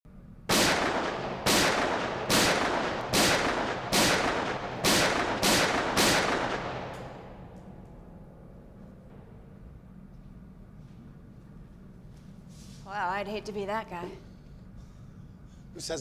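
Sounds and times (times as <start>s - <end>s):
gunshots with echo: 0.5s - 7.8s.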